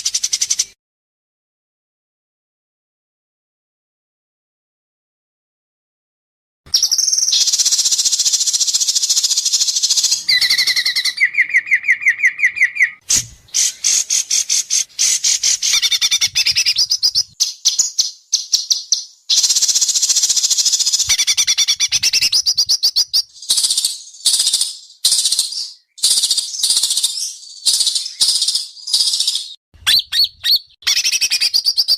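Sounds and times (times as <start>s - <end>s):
songbird singing fast varied song: 6.7s - 31.9s.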